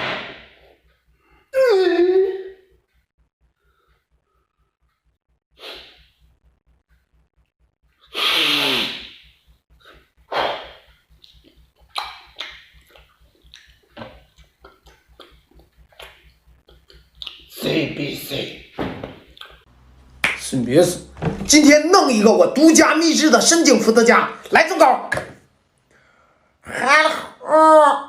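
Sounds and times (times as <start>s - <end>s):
man sneezing: 8.1s - 9.2s.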